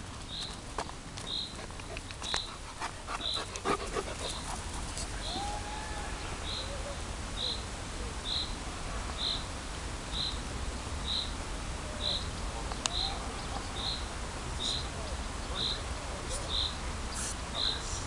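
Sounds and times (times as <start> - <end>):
dog panting: 1.6 - 5.2.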